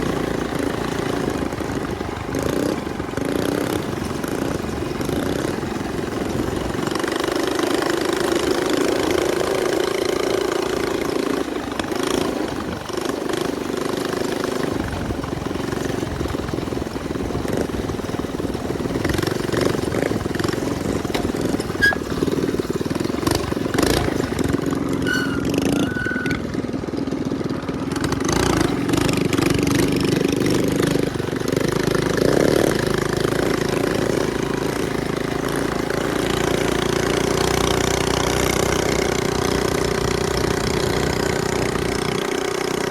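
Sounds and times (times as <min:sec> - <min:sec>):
small engine wavering pitch: 0:21.7 - 0:22.3, 0:24.8 - 0:26.6.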